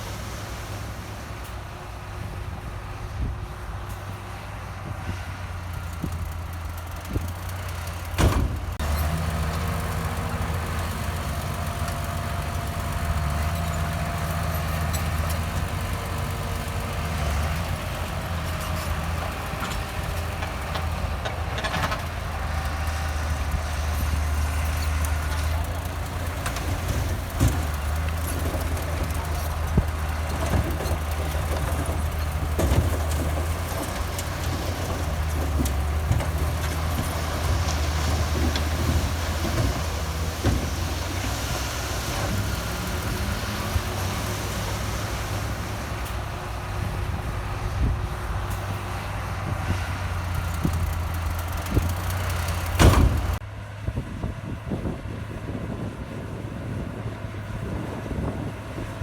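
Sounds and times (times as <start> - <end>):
heavy diesel machinery droning: 0.0 - 59.0
metal clanks and knocks: 17.0 - 43.6, 50.3 - 53.4.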